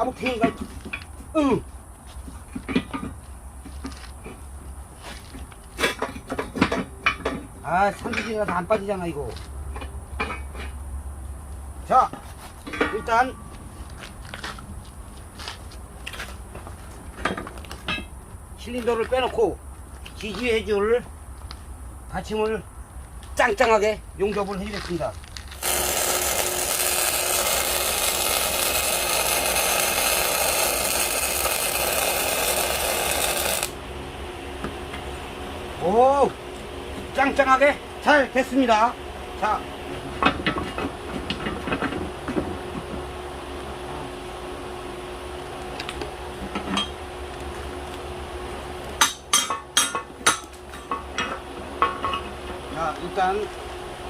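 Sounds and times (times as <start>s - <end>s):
steady low hum: 0.0s - 54.0s
arc welding crackling hiss: 25.5s - 33.8s
hammer striking steel: 49.0s - 52.3s.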